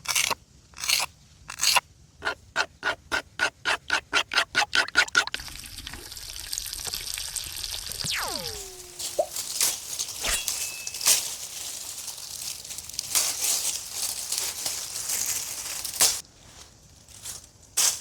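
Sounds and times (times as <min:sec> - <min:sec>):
downward-gliding tone: 0:08.0 - 0:09.4
dry twigs and leaves crunching: 0:08.6 - 0:18.0.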